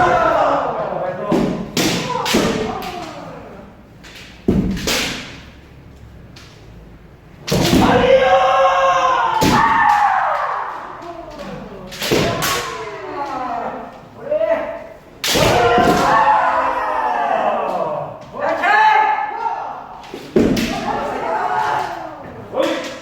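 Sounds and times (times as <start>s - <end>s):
loud drawn-out shouts: 0.0s - 3.7s, 7.6s - 23.0s
bamboo sword strikes: 1.4s - 3.0s, 4.5s - 5.5s, 7.5s - 8.1s, 11.9s - 12.8s, 15.2s - 16.2s.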